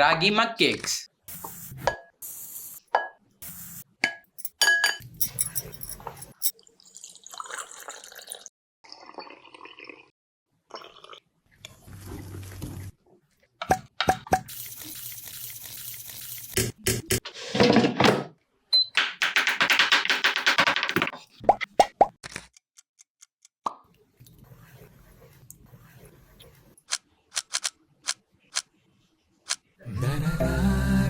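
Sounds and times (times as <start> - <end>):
spoon clinking on glass: 4.0 - 6.5
liquid pouring and dripping: 6.1 - 8.5.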